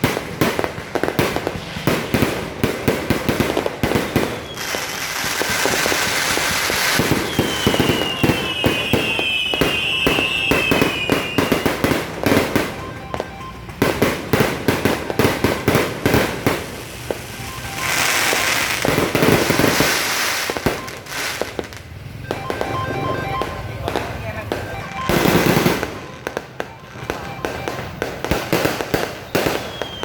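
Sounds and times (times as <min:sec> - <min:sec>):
fireworks bangs and crackles: 0:00.0 - 0:30.0
whistling rockets: 0:03.3 - 0:12.8, 0:14.4 - 0:21.6, 0:28.0 - 0:30.0
thick crackling hiss: 0:16.6 - 0:21.9.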